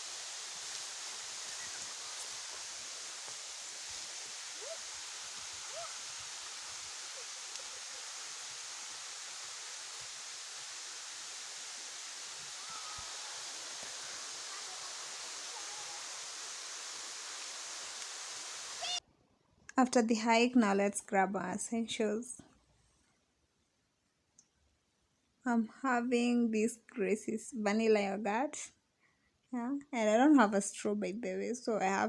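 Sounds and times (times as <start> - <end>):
outdoor rushing hiss: 0.0 - 19.0.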